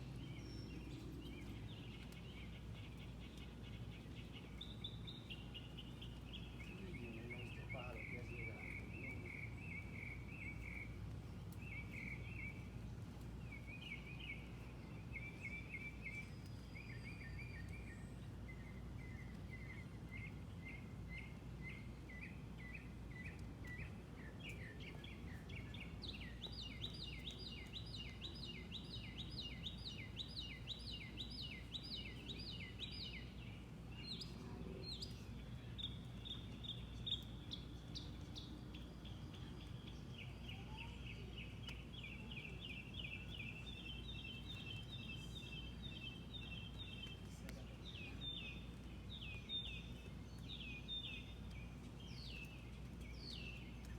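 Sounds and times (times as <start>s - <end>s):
bird chirping: 0.0s - 53.9s.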